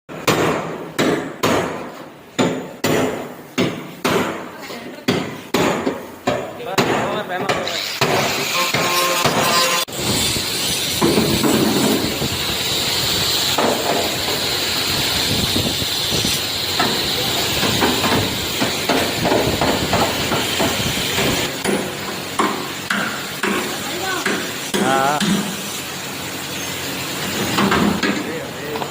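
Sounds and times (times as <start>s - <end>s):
hammer on sheet metal: 0.1s - 4.5s, 5.1s - 10.2s, 10.9s - 12.2s, 16.8s - 25.6s.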